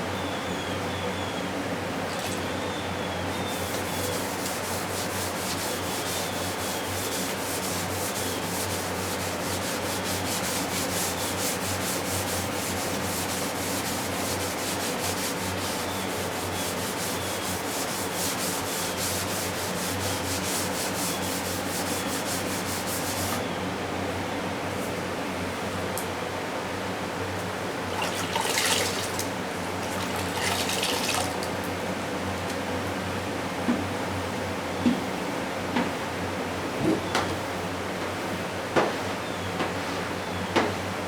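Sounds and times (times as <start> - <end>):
hand sanding strokes: 3.3 - 23.4.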